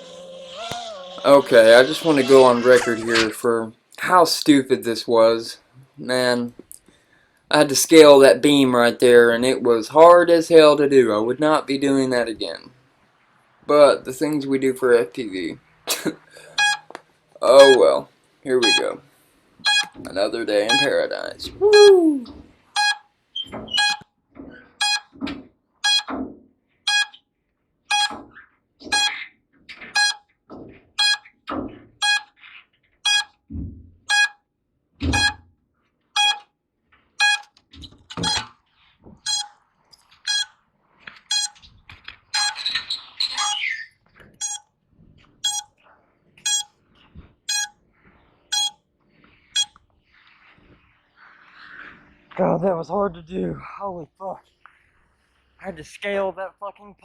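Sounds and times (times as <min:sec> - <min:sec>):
piezo buzzer beeping: 0:16.5 - 0:16.9, 0:17.6 - 0:17.8, 0:18.6 - 0:18.9, 0:19.6 - 0:20.0, 0:20.7 - 0:20.9, 0:22.8 - 0:23.0, 0:23.8 - 0:24.0, 0:24.8 - 0:25.1, 0:25.8 - 0:26.1, 0:26.9 - 0:27.2, 0:27.9 - 0:28.2, 0:28.9 - 0:29.2, 0:30.0 - 0:30.2, 0:31.0 - 0:31.3, 0:32.0 - 0:32.3, 0:33.0 - 0:33.4, 0:34.1 - 0:34.4, 0:35.1 - 0:35.4, 0:36.2 - 0:36.4, 0:37.2 - 0:37.5, 0:38.2 - 0:38.5, 0:39.3 - 0:39.6, 0:40.3 - 0:40.5, 0:41.3 - 0:41.6, 0:42.4 - 0:42.6, 0:44.4 - 0:44.6, 0:45.4 - 0:45.7, 0:46.5 - 0:46.7, 0:47.5 - 0:47.7, 0:48.5 - 0:48.8, 0:49.6 - 0:49.8.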